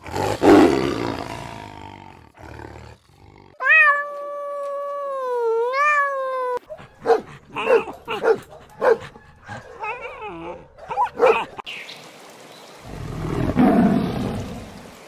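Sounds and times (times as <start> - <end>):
kitten meowing: 3.6 - 4.7, 5.6 - 6.6
puppy whimpering: 9.4 - 11.4.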